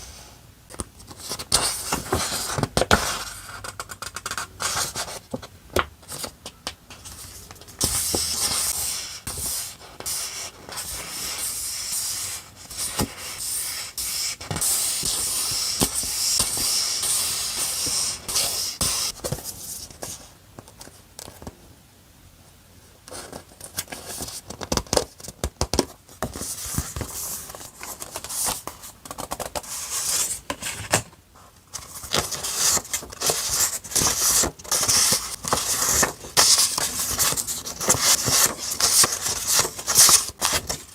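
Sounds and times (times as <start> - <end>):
paper rustling and scraping: 6.1 - 21.0, 26.2 - 40.9.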